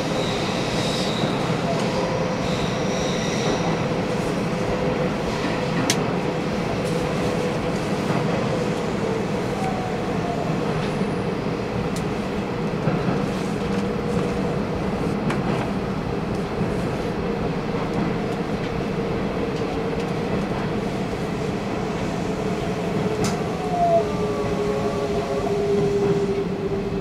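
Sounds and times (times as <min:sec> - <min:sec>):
train wheels rumbling: 0:00.0 - 0:27.0.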